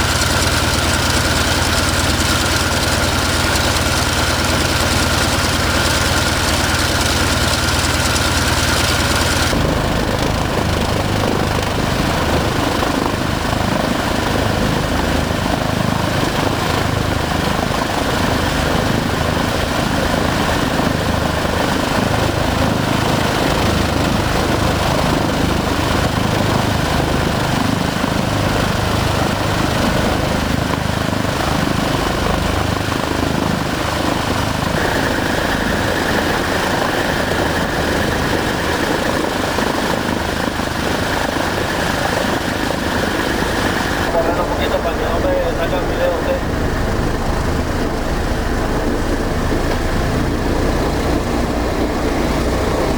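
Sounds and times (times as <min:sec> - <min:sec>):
piston engines running: 0:00.0 - 0:13.8, 0:31.6 - 0:52.9
propeller noise: 0:00.0 - 0:52.9
smooth low hum: 0:43.1 - 0:52.9.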